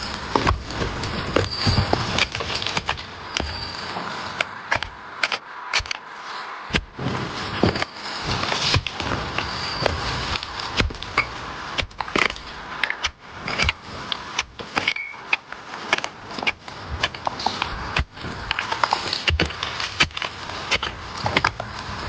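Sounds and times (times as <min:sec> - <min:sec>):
rustling: 0:00.0 - 0:22.0
tool digging in earth and stones: 0:00.0 - 0:22.0.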